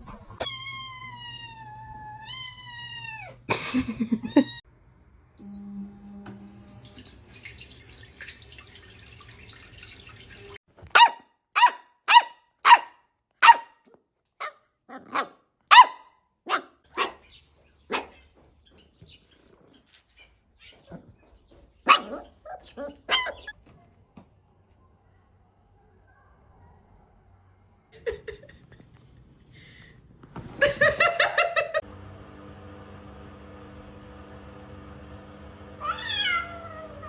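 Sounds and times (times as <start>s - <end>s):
dog barking: 10.9s - 13.8s, 14.4s - 17.3s, 17.9s - 18.2s, 21.8s - 23.5s, 25.7s - 27.1s.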